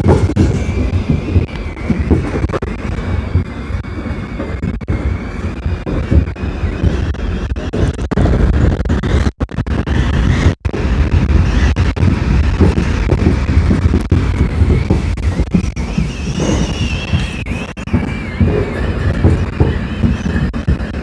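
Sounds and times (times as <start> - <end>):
faint high whine: 0.0 - 21.0
subway train rumbling on track: 10.8 - 21.0.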